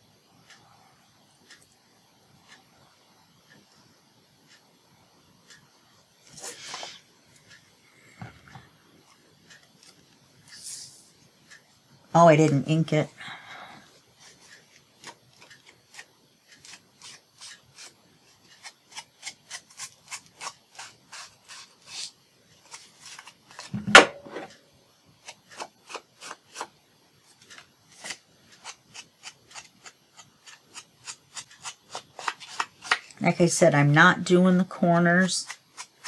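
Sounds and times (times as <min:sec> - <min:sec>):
sharp knock: 0:23.7 - 0:24.5.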